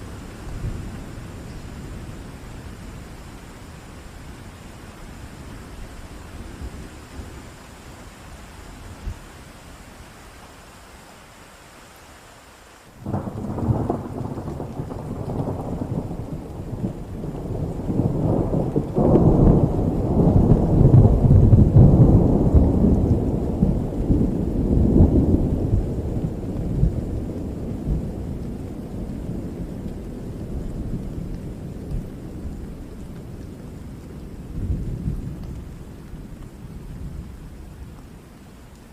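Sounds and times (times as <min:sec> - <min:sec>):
steady rain: 0:00.0 - 0:38.9
thunder peal: 0:13.0 - 0:27.1.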